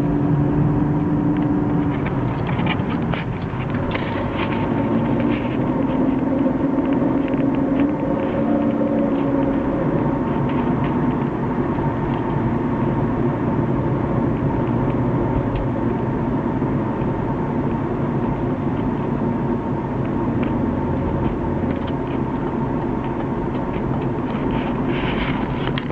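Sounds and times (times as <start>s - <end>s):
car drivetrain and road noise: 0.0s - 25.9s.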